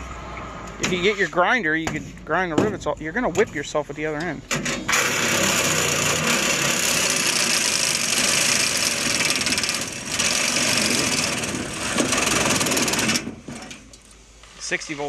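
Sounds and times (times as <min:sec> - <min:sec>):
power tool cutting metal: 0:04.9 - 0:13.3.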